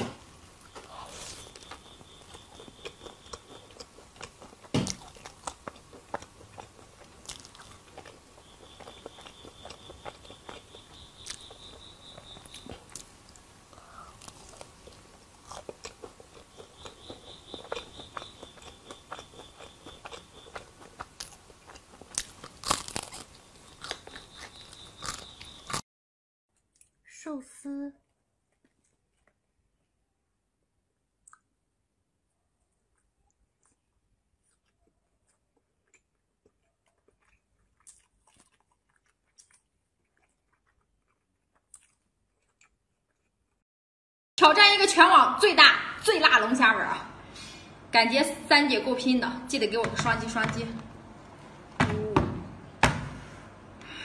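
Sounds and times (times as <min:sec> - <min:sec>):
crunching and chewing food: 0:00.6 - 0:25.8, 0:26.5 - 0:27.0, 0:28.1 - 0:30.0, 0:32.3 - 0:43.6.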